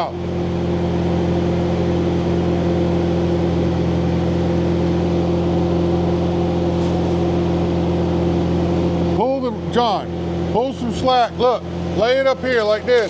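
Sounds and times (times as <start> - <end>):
welding machine humming: 0.7 - 13.0.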